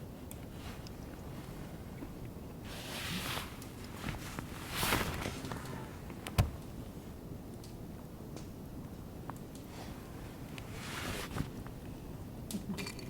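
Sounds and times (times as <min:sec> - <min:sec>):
rustling swishes: 0:02.6 - 0:06.6, 0:10.7 - 0:11.6.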